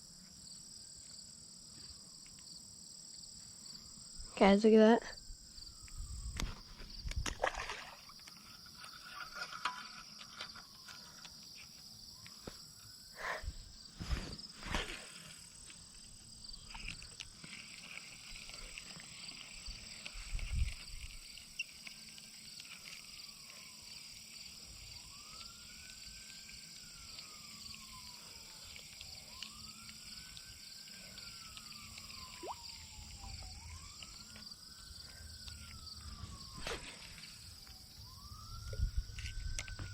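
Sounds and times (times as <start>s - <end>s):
insects droning: 0.0s - 39.9s
distant siren wailing: 5.4s - 13.4s, 16.7s - 39.9s.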